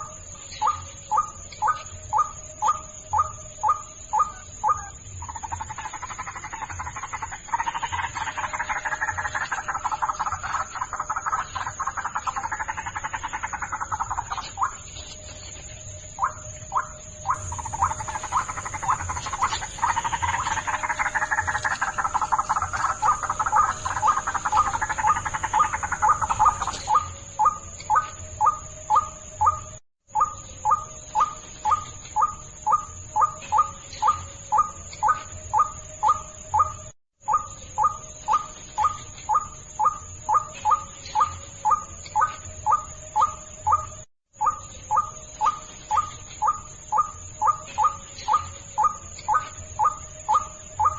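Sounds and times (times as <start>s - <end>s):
waterhen calls: 16.2s - 27.6s.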